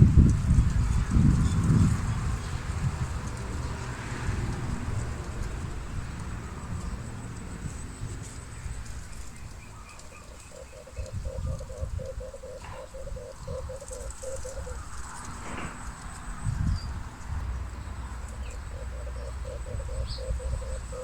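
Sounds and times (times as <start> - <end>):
dove cooing: 9.7 - 16.0, 18.3 - 21.0.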